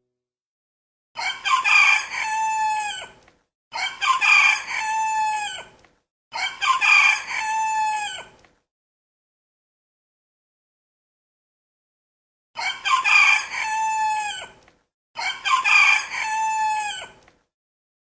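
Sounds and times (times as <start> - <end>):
rooster crowing: 1.2 - 3.2, 3.8 - 5.7, 6.4 - 8.3, 12.6 - 14.6, 15.2 - 17.2.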